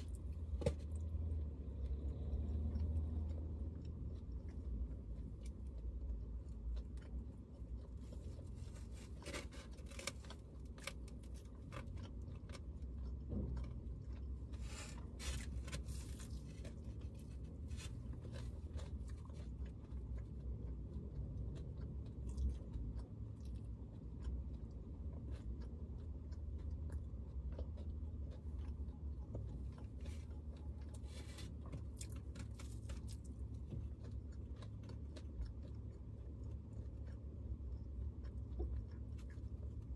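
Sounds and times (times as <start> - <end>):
person chewing and crunching: 0.0 - 39.9
steady low hum: 0.0 - 39.9.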